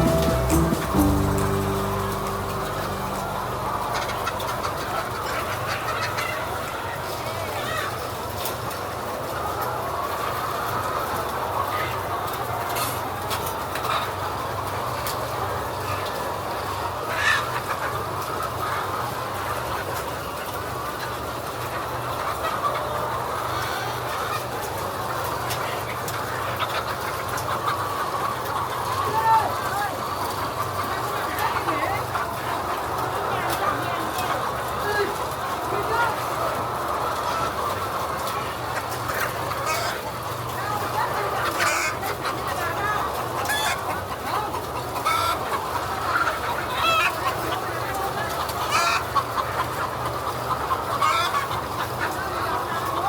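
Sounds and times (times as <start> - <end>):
hens clucking: 30.2 - 53.0.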